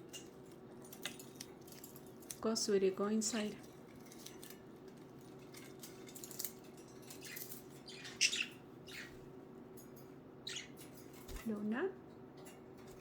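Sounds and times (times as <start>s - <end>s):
budgerigars chirping: 7.2s - 9.2s, 10.4s - 10.8s.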